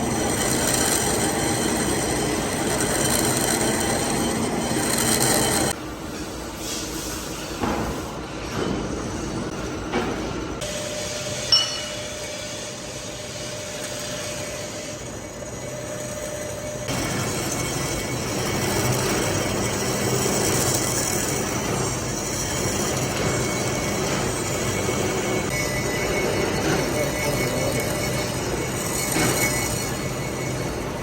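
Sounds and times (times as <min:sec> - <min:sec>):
workshop machinery running: 0:00.0 - 0:31.0
sharp metallic clink: 0:11.5 - 0:12.2.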